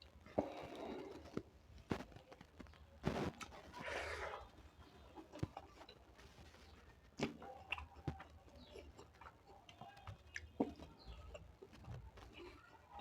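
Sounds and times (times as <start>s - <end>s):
person chewing food: 4.2s - 13.0s
mouth clicks and smacks: 7.2s - 12.5s.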